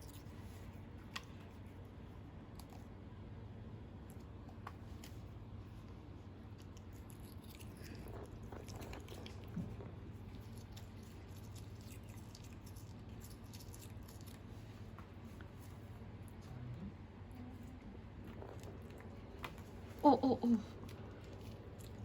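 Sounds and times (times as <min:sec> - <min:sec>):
low steady hum: 0:00.0 - 0:22.0
cat chewing on toothbrush: 0:04.0 - 0:16.7, 0:18.0 - 0:20.0, 0:20.6 - 0:22.0.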